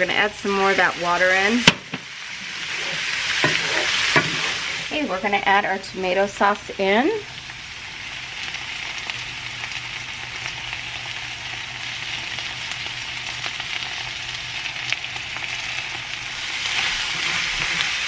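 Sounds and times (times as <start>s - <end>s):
food sizzling in oil in a skillet: 0.0s - 18.0s.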